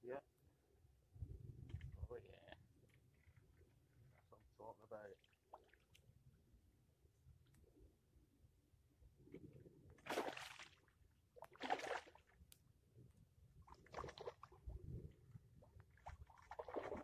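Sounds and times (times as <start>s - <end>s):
faint water splashes: 2.8s - 6.2s, 9.3s - 12.5s, 13.6s - 17.0s.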